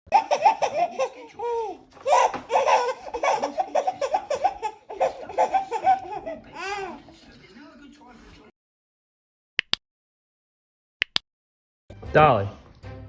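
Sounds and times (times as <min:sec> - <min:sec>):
high-pitched laughter: 0:00.1 - 0:07.0.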